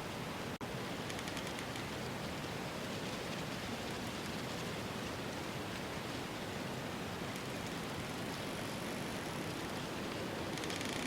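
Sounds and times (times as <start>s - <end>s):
outdoor ambience hiss: 0.0s - 11.0s.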